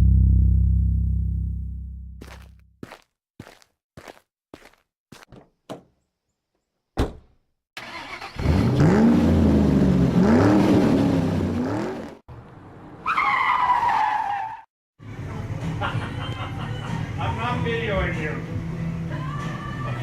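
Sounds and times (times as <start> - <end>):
thump: 7.0 - 7.4
car engine revving hard: 7.8 - 12.2.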